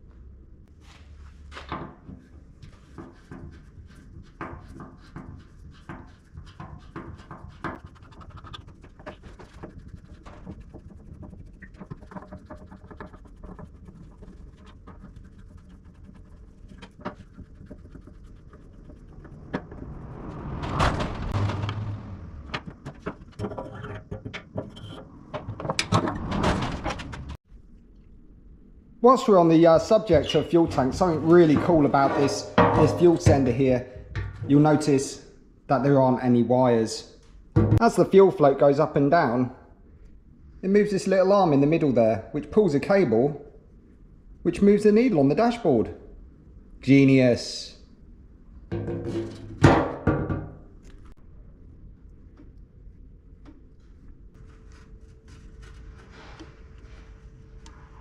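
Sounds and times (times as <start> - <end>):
tools on a steel tank: 22.9 - 26.1, 30.1 - 34.6, 48.7 - 50.5.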